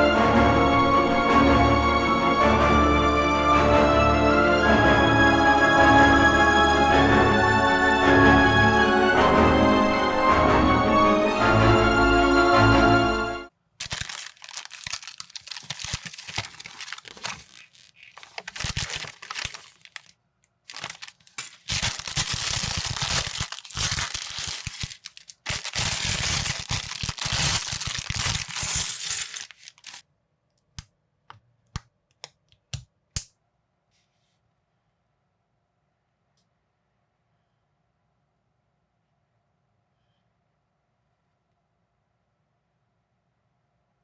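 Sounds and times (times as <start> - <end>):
plastic packaging crinkling and tearing: 13.8 - 30.0.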